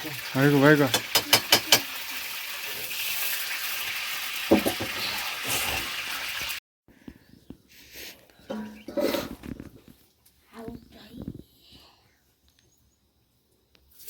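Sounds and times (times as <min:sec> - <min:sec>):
food sizzling in a hot pan: 0:00.0 - 0:06.6
metal knocks on pan: 0:00.9 - 0:01.9, 0:04.5 - 0:05.0.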